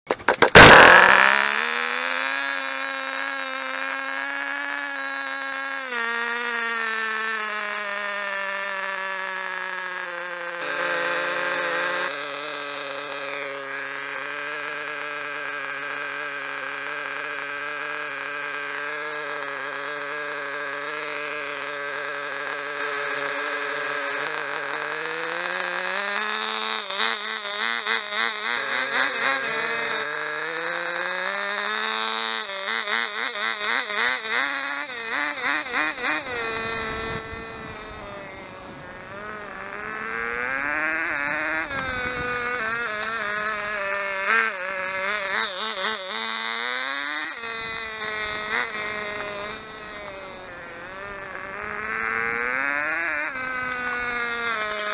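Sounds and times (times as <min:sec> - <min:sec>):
model engine buzzing: 0:00.0 - 0:54.9.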